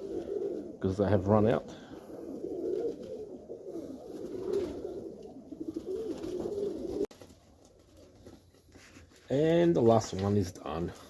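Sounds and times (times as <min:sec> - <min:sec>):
pigeons cooing: 0:00.0 - 0:07.1.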